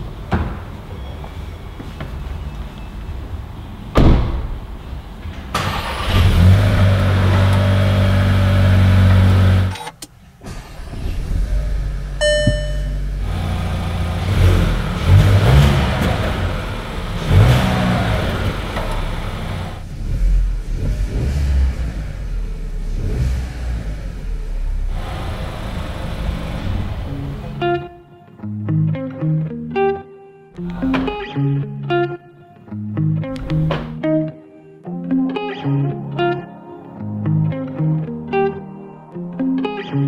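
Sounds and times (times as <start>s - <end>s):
car engine starting and running: 3.7s - 27.8s
car door shutting: 3.9s - 4.6s
engine revs blipped: 11.3s - 27.6s
short electronic chime: 12.2s - 13.1s.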